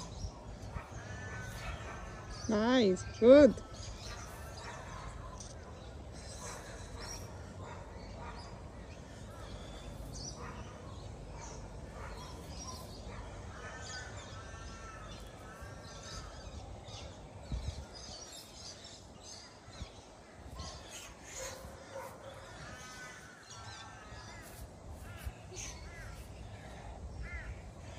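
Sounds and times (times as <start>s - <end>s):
low wind rumble: 0.0s - 27.9s
small birds chirping: 0.0s - 27.9s.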